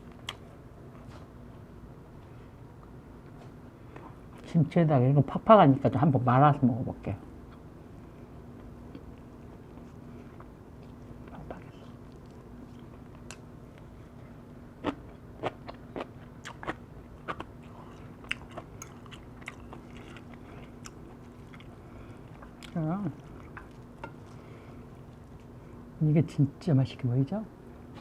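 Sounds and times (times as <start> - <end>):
faint steady hum: 0.0 - 28.0
close-up chewing with crunching: 8.9 - 25.8.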